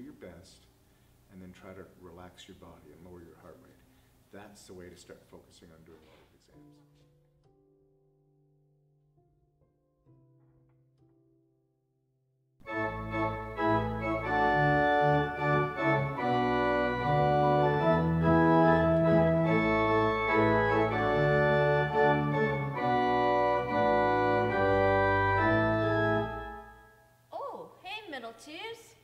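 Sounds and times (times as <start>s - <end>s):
organ playing chords: 12.6s - 27.3s.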